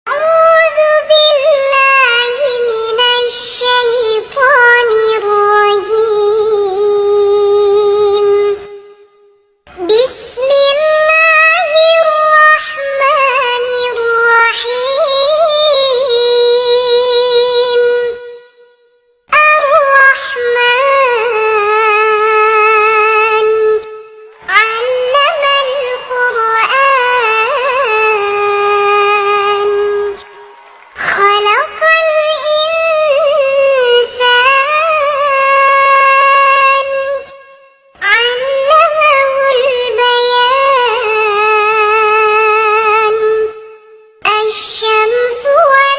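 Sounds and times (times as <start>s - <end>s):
girl chanting recitation: 0.1s - 9.0s, 9.7s - 18.5s, 19.3s - 30.3s, 31.0s - 45.9s.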